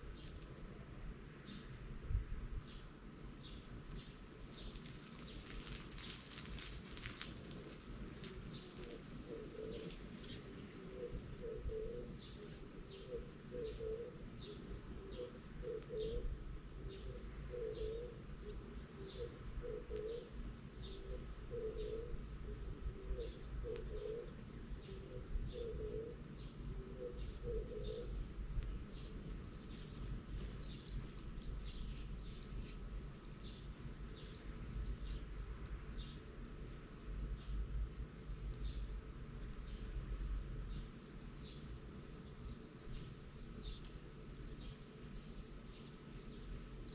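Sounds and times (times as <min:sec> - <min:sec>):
sharp crackles: 0:00.0 - 0:13.1, 0:28.0 - 0:46.9
dove cooing: 0:07.6 - 0:31.6.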